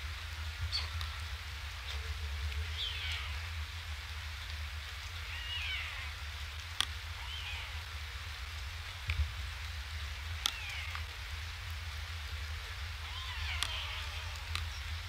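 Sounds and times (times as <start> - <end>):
raindrops ticking on camera: 0.0 - 15.0
steady rain falling: 0.0 - 15.0
faint high mewing calls: 1.9 - 3.7, 5.1 - 6.4, 7.0 - 8.0, 10.3 - 11.3, 13.0 - 15.0.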